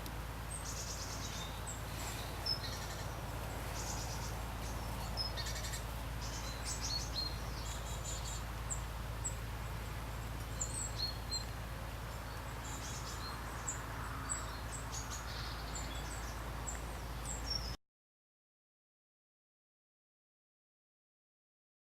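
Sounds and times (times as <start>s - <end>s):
rain: 0.0s - 17.5s
small birds chirping: 0.0s - 17.8s.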